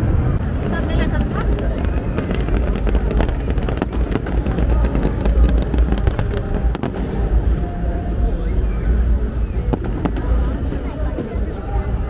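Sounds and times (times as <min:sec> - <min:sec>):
sharp firework crack: 0:00.0 - 0:07.8, 0:08.9 - 0:11.8
fireworks crackling and banging: 0:00.0 - 0:12.0
low rumble: 0:00.0 - 0:12.0.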